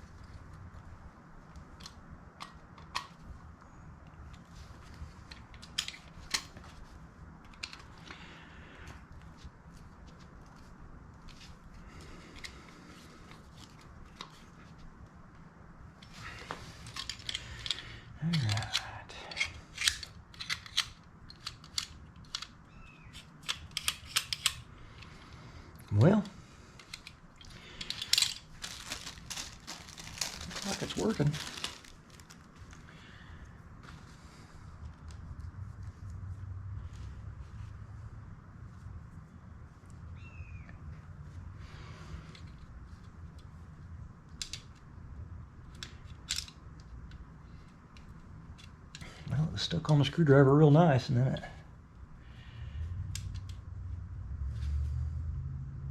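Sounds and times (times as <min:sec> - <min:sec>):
low steady hum: 0:00.0 - 0:55.9
small metal parts clicking: 0:05.3 - 0:06.5, 0:16.8 - 0:25.1, 0:26.8 - 0:30.4, 0:45.7 - 0:47.2.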